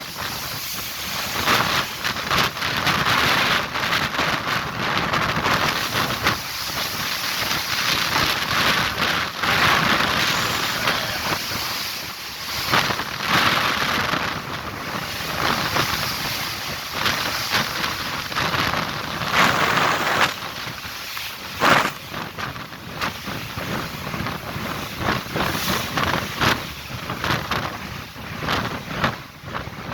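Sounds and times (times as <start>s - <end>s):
rough sea: 0.0s - 29.9s
strong wind: 0.0s - 29.9s
wind buffeting microphone: 0.0s - 29.9s.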